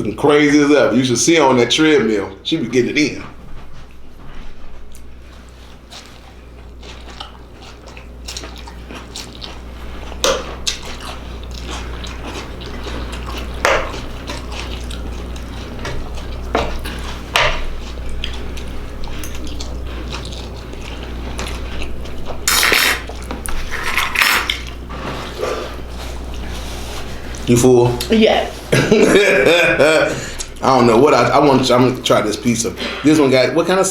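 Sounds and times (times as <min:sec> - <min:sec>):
steady low hum: 0:00.0 - 0:33.9
chewing: 0:04.8 - 0:28.1.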